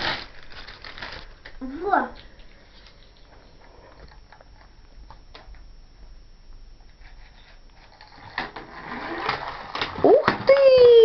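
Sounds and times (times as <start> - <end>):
plastic toys clicking and rustling: 9.2 - 11.0.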